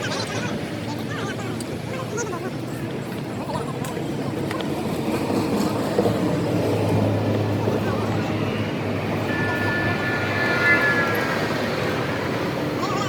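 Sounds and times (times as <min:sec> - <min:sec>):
high falling whine: 0:07.6 - 0:13.0.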